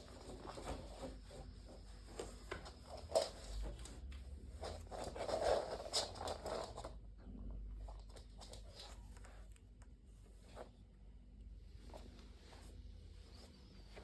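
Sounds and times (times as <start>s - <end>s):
close-up rubbing and rustling: 0.0s - 7.0s, 11.7s - 14.0s.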